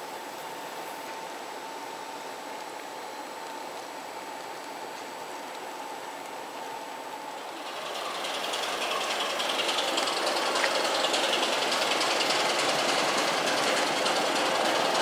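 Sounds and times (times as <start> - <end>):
diesel engine clatter: 7.5 - 15.0.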